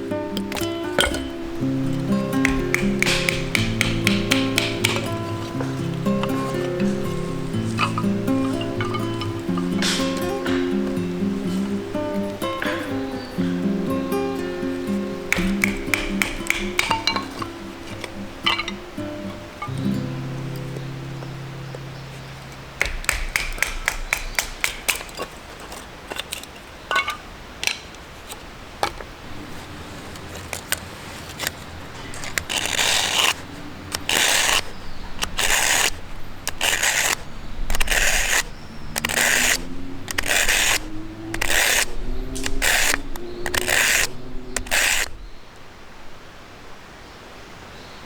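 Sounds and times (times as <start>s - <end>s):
noisy scraping strokes: 0.0s - 26.7s, 29.4s - 45.2s
quick sharp clicks: 0.3s - 10.9s, 15.2s - 18.8s, 22.8s - 25.3s, 31.3s - 45.2s.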